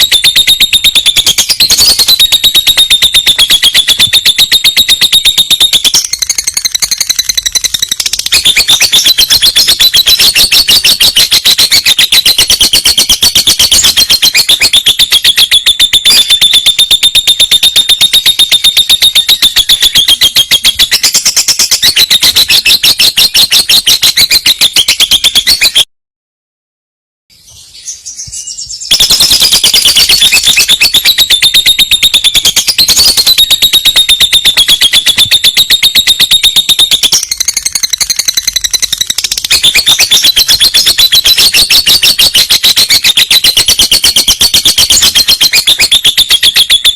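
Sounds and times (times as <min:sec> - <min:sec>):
bird singing a buzzy trill: 0:00.0 - 0:25.8, 0:27.3 - 0:46.9
faint bird chirps: 0:00.0 - 0:25.8.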